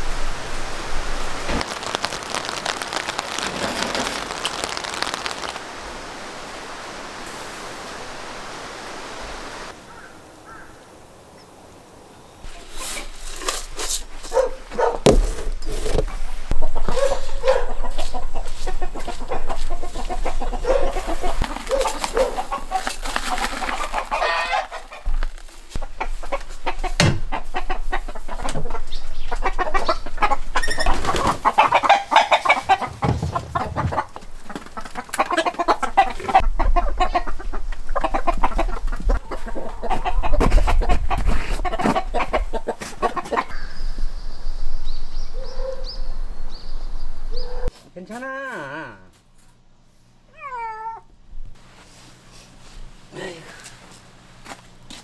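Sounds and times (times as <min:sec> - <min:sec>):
rain-like hiss: 0:00.0 - 0:14.3, 0:15.6 - 0:39.4
hens clucking: 0:14.0 - 0:44.0
clicks and knocks: 0:32.4 - 0:34.3.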